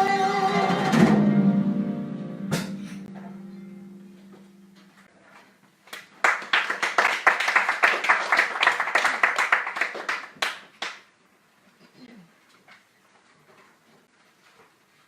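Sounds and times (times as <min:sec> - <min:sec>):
audience clapping: 0:05.9 - 0:11.1.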